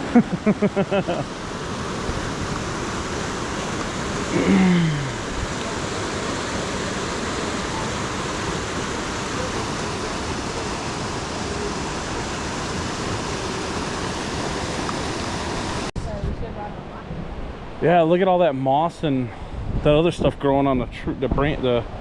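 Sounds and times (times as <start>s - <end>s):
waterfall and rapids rushing: 0.0s - 15.9s.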